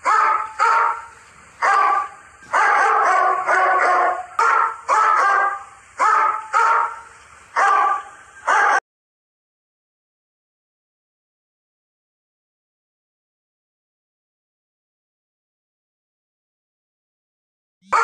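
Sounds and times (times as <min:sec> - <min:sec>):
dog barking: 0:00.0 - 0:08.8.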